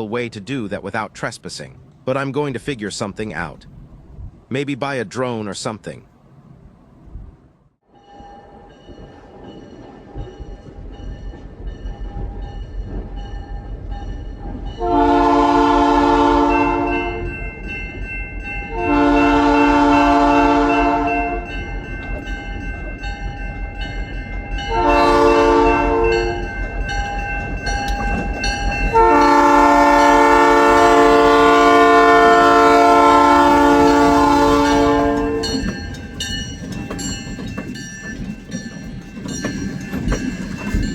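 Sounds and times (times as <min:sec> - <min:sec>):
diesel locomotive rumble: 0:09.0 - 0:40.9
train horn blasts: 0:14.8 - 0:17.3, 0:18.6 - 0:21.6, 0:24.6 - 0:26.6, 0:28.9 - 0:35.8.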